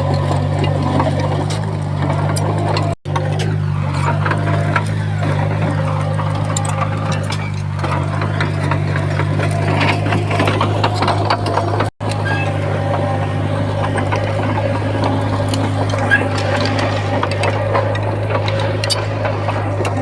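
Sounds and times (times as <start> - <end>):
bulldozer diesel engine humming: 0.0 - 20.0
metallic clanking and rattling: 0.0 - 20.0.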